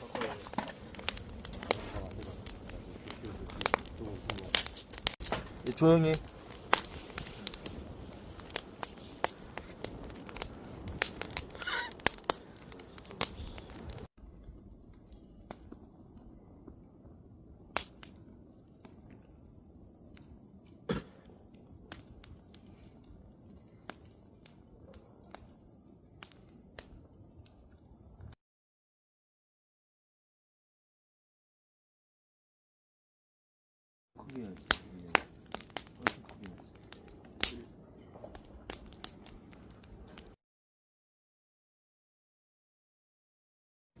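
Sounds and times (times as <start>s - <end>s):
campfire crackling and popping: 0.0s - 28.4s, 34.2s - 40.4s.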